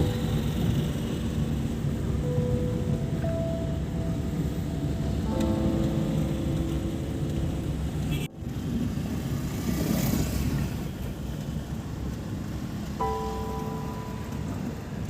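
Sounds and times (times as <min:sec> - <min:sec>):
vehicle road noise rumble: 0:00.0 - 0:15.0.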